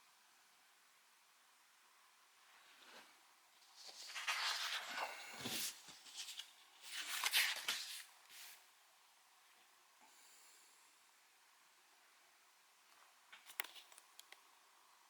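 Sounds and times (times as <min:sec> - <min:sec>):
paper pages rustling: 0:02.6 - 0:08.6.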